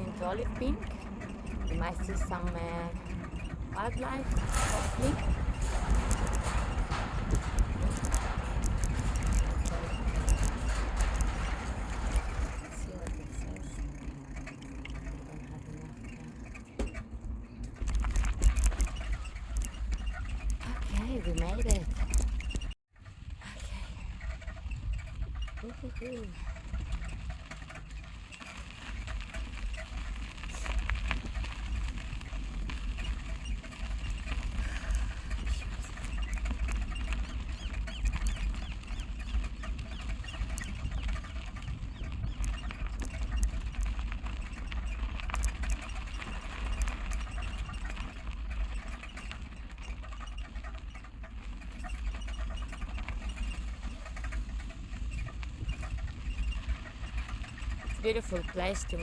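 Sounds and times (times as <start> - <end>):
bicycle clicks and rattles: 0.0 - 23.3, 24.0 - 59.0
wind buffeting microphone: 0.0 - 59.0.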